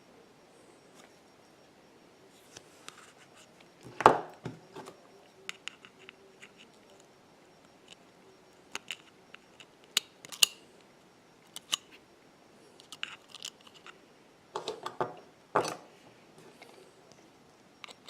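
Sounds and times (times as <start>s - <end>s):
metal tools clicking and tapping: 5.5s - 7.0s
small parts clattering: 12.8s - 14.0s.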